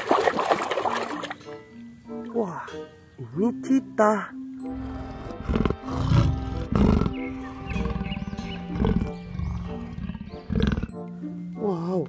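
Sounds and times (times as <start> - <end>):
background music: 0.0 - 12.0
big cat growling: 4.7 - 11.0.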